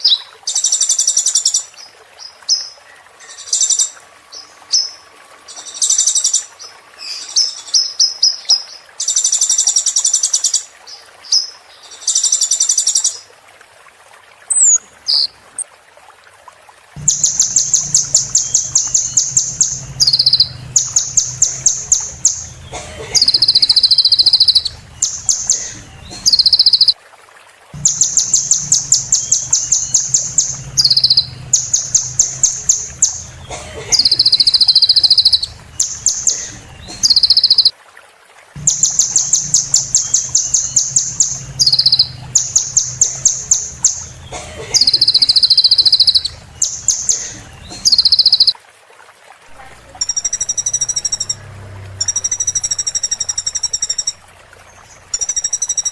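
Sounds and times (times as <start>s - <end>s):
bird singing high trills: 17.0s - 27.0s, 27.8s - 37.7s, 38.6s - 48.6s, 50.0s - 51.4s, 52.0s - 55.9s.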